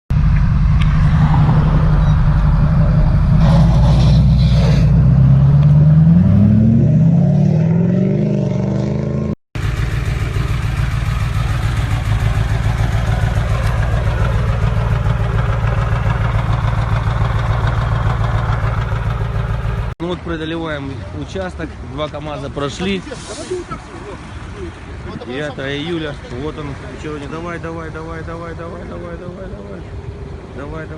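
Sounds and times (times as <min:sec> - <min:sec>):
heavy engine running steadily: 0:00.1 - 0:05.2, 0:09.6 - 0:19.9
diesel truck engine revving: 0:00.1 - 0:20.0.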